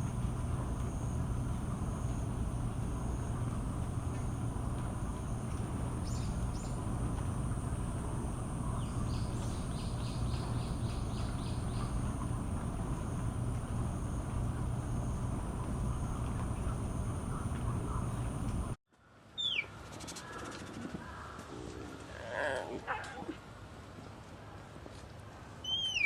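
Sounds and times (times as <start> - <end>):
high-pitched whine: 0.0 - 18.8
low hum: 0.0 - 18.8
bird chirping: 0.2 - 18.7.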